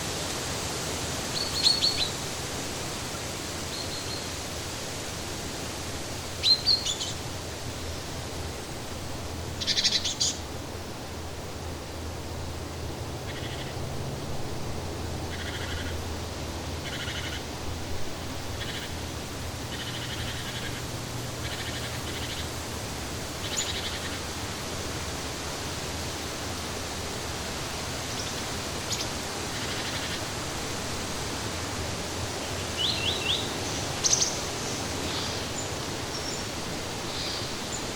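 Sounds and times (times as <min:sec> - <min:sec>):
flowing water rushing: 0:00.0 - 0:37.9
songbirds calling: 0:01.0 - 0:04.5, 0:06.2 - 0:08.2, 0:09.5 - 0:10.5, 0:13.2 - 0:13.9, 0:15.1 - 0:17.6, 0:18.2 - 0:24.4, 0:27.8 - 0:30.4, 0:31.9 - 0:37.9.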